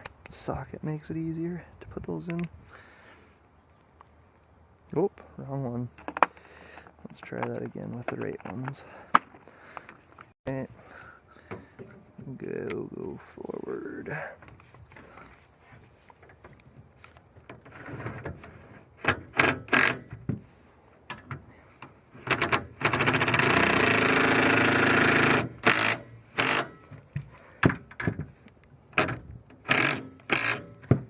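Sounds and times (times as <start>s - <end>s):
socket ratchet clicking: 22.2s - 26.7s, 29.0s - 30.8s.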